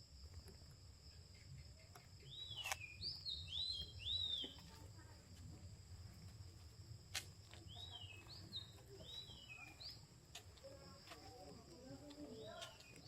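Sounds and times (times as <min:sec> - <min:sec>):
faint whistled birdsong: 0:01.1 - 0:04.7, 0:07.6 - 0:10.1.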